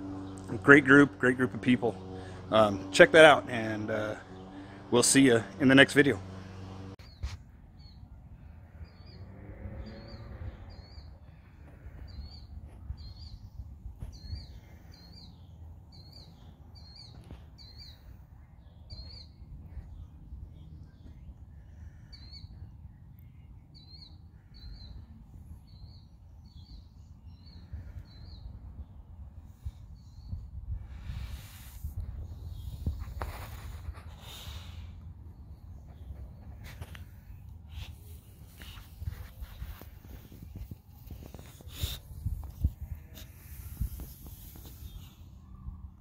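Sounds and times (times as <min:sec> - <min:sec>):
small bird chirping: 0:07.0 - 0:28.6.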